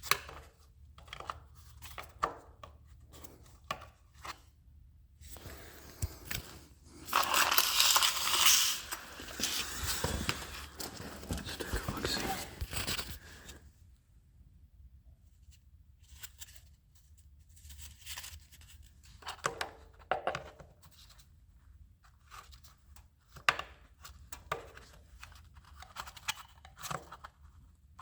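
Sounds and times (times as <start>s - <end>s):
plastic parts clicking and scraping: 5.3s - 13.6s.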